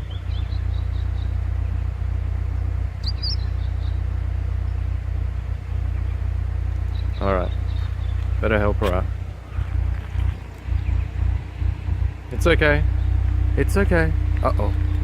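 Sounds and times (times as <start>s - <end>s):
small bird chirping: 0.0s - 1.9s, 2.6s - 4.9s, 5.9s - 11.6s, 12.8s - 13.4s
car engine idling: 0.0s - 15.0s.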